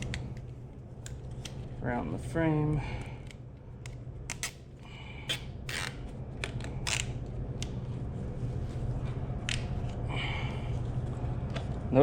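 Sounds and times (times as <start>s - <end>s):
steady low hum: 0.0s - 12.0s
zip ties ratcheting: 5.3s - 7.2s.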